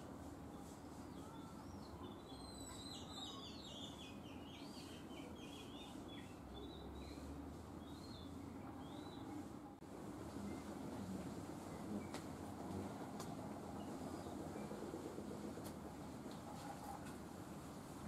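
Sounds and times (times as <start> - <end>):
small birds chirping faintly: 0.0 - 15.4
steady low hum: 3.8 - 18.0.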